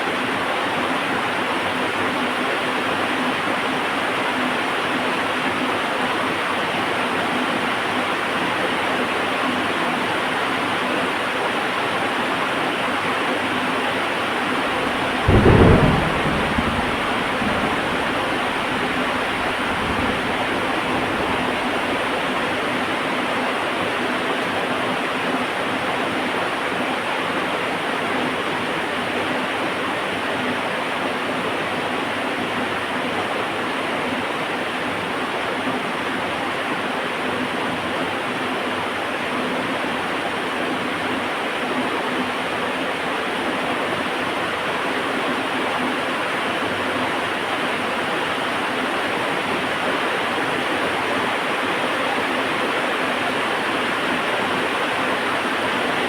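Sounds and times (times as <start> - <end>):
heavy rain: 11.4 - 56.0
thunder clap rumbling: 14.4 - 23.4.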